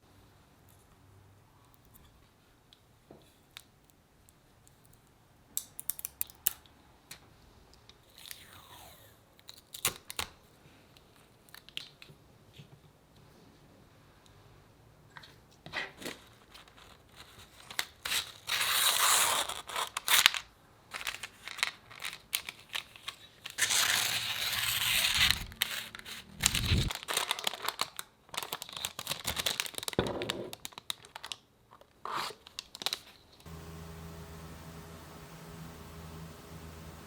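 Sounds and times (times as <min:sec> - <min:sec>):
crinkling and tearing: 0:16.0 - 0:33.5.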